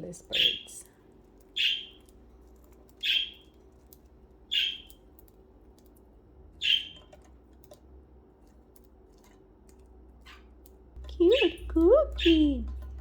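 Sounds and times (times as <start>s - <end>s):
budgie sharp calls: 3.0s - 3.5s, 4.5s - 4.9s.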